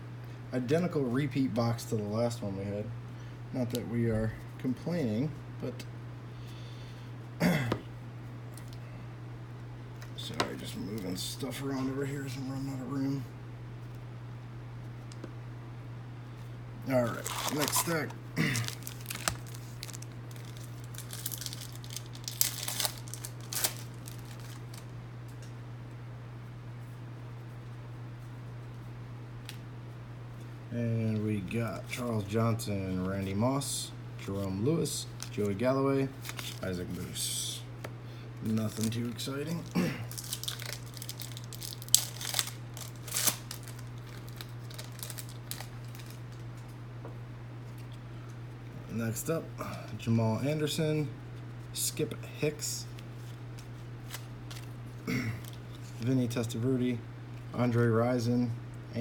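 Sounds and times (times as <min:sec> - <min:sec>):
steady low hum: 0:00.0 - 0:59.0
trading cards rustling: 0:16.9 - 0:24.9, 0:34.2 - 0:37.0, 0:38.5 - 0:46.6, 0:52.8 - 0:54.8
foil wrappers crinkling: 0:16.9 - 0:25.0, 0:34.2 - 0:37.0, 0:38.5 - 0:46.7, 0:52.9 - 0:56.1.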